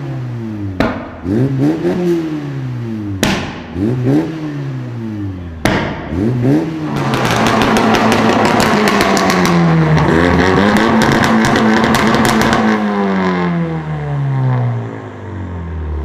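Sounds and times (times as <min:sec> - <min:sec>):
sports car engine revving: 0:00.0 - 0:16.0
exhaust crackle: 0:05.4 - 0:12.8.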